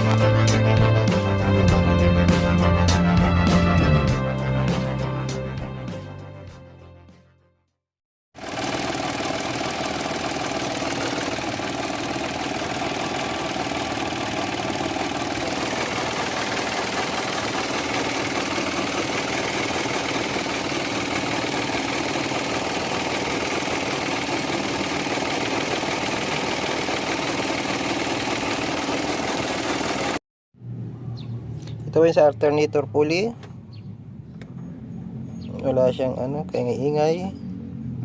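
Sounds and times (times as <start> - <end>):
car engine idling: 8.4 - 30.2.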